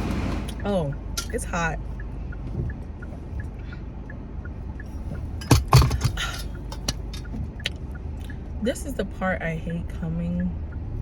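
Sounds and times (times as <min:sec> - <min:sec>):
car interior road rumble: 0:00.0 - 0:11.0
sharp clinks and knocks: 0:05.4 - 0:07.8.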